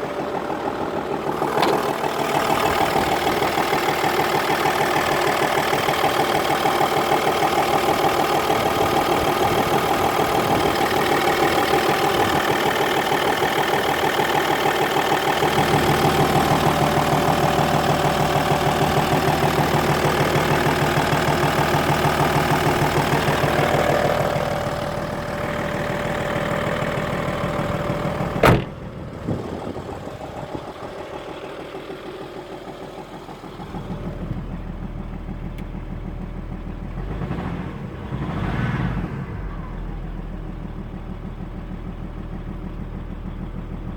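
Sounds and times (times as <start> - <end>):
diesel engine knocking: 0.0 - 38.5, 39.3 - 43.9
sharp bang: 28.4 - 28.8.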